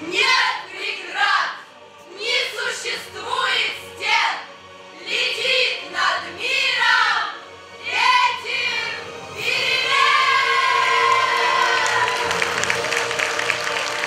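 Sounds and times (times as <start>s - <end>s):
choir singing with accompaniment: 0.0s - 13.1s.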